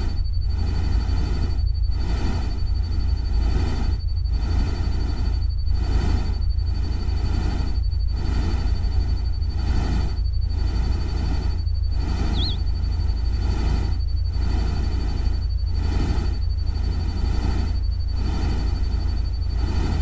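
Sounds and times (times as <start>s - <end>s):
thin steady high tone: 12.1s - 13.0s
brief chirp: 12.3s - 12.6s.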